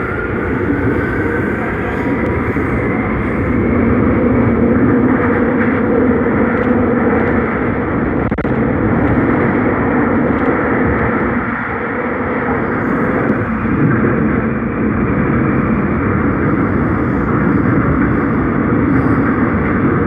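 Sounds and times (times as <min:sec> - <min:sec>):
subway train wheels rumbling on rail: 0:00.0 - 0:20.0.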